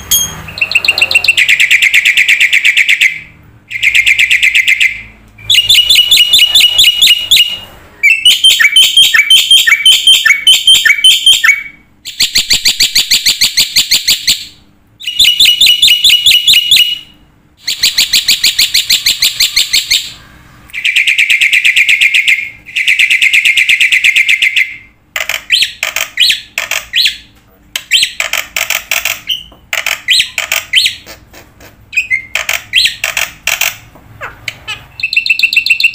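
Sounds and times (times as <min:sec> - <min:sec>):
bird singing trilled notes: 0:00.0 - 0:27.3, 0:34.5 - 0:35.9.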